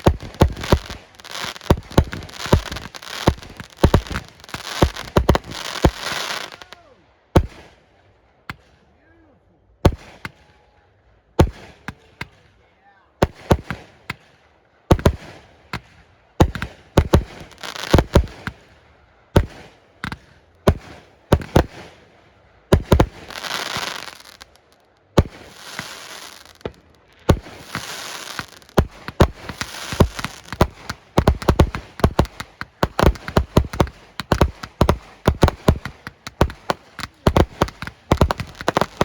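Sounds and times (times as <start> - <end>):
fireworks booming: 0.0 - 6.8, 14.9 - 18.7, 19.4 - 22.1, 22.7 - 39.0
fireworks crackling: 0.0 - 7.7, 13.2 - 14.3, 14.9 - 39.0.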